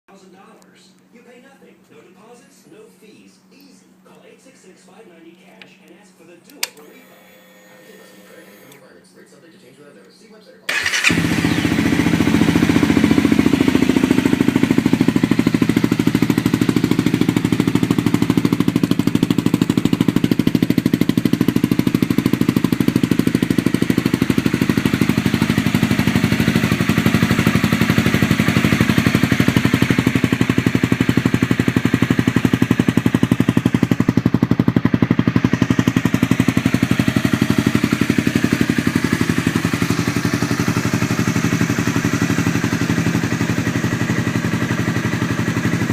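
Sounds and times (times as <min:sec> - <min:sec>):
motorcycle engine idling: 0:10.7 - 0:45.9.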